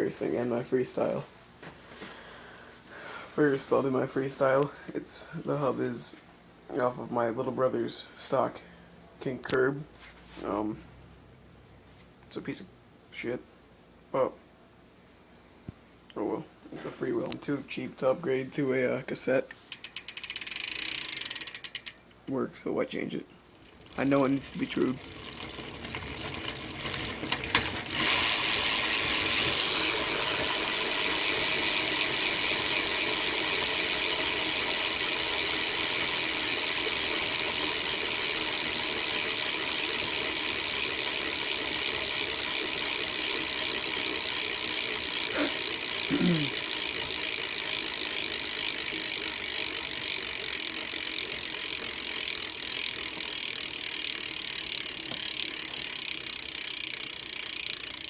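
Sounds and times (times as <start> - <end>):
bicycle freewheel ratcheting: 19.6 - 22.0, 23.4 - 58.0.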